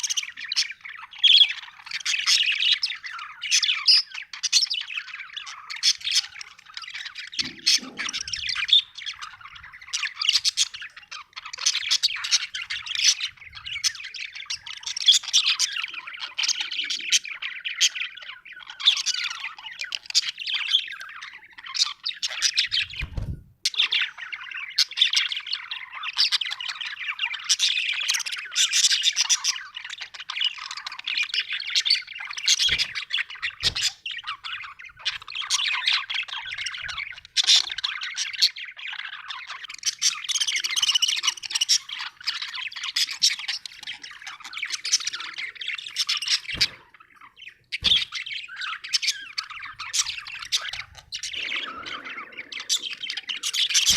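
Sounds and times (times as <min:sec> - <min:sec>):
budgerigar chirping: 0:23.7 - 0:53.9.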